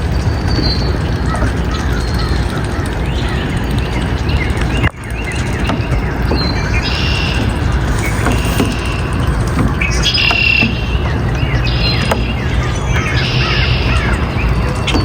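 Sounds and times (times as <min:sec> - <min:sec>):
birds chirping: 0:04.3 - 0:14.8.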